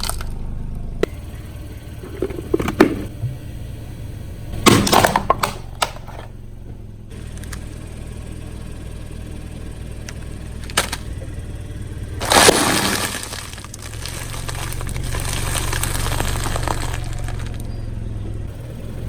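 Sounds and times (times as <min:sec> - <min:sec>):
small cracks: 0:00.0 - 0:00.4, 0:10.0 - 0:11.3, 0:12.2 - 0:17.7
tyre crushing something brittle: 0:00.0 - 0:00.4, 0:10.6 - 0:11.2, 0:12.2 - 0:17.7
car engine running: 0:00.0 - 0:19.0.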